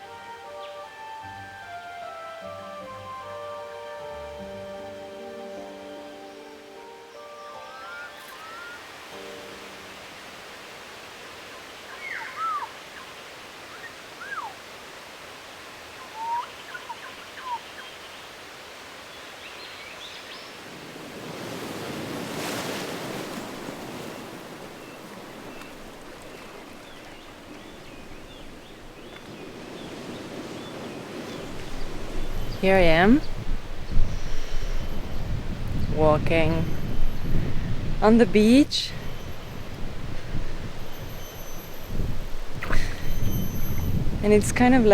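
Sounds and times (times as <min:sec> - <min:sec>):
soft shore hiss: 0:00.0 - 0:44.9
whistled bird calls: 0:07.4 - 0:08.8, 0:11.9 - 0:13.1, 0:13.7 - 0:14.6, 0:16.0 - 0:18.0, 0:26.8 - 0:32.6, 0:33.2 - 0:35.4, 0:40.8 - 0:44.1
wave washing in: 0:20.6 - 0:44.8.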